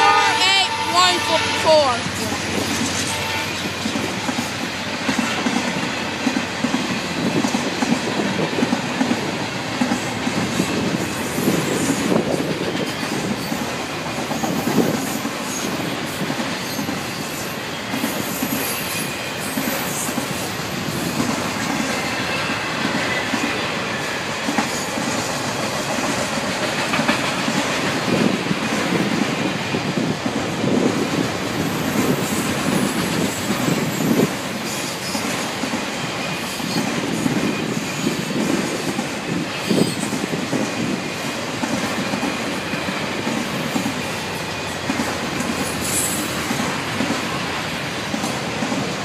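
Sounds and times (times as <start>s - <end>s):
steel wheels rumbling on rails: 0.0s - 49.0s.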